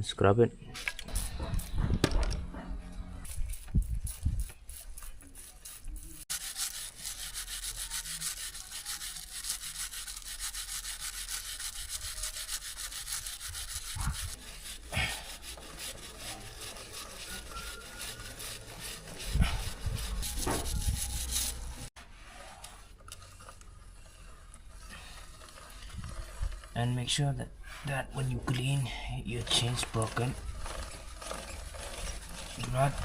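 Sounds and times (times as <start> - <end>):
brush scrubbing motorcycle chain: 3.2 - 22.0, 22.6 - 33.0.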